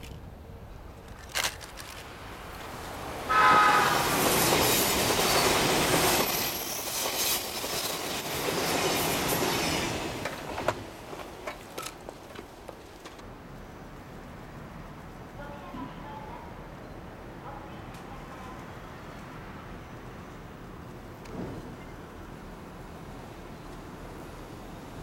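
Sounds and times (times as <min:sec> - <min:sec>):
electric train passing at speed: 0:01.8 - 0:25.0
train horn blast: 0:03.3 - 0:04.4.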